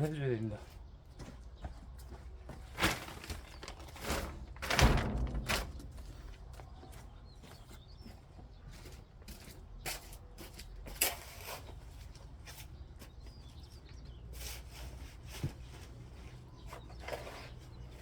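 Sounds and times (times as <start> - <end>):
soil being scraped and shovelled: 11.0 - 11.9.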